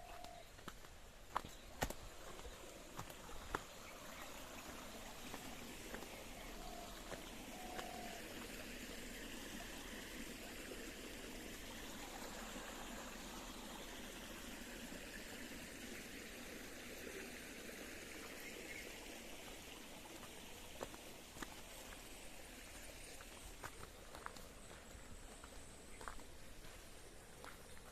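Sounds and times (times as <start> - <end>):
small stream trickling: 0.0 - 27.9.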